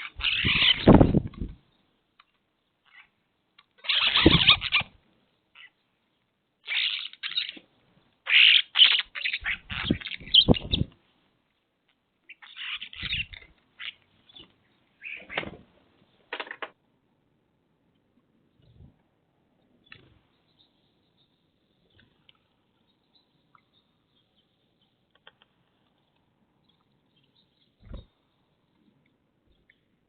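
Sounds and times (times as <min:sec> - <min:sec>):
birds making harsh noisy calls: 0:00.0 - 0:01.5, 0:03.8 - 0:05.0, 0:06.7 - 0:07.6, 0:08.3 - 0:10.9, 0:12.3 - 0:14.0, 0:15.0 - 0:15.6.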